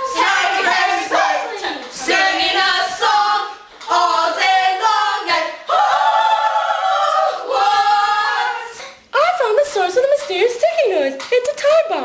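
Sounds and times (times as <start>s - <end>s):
voices singing a capella: 0.0s - 9.1s.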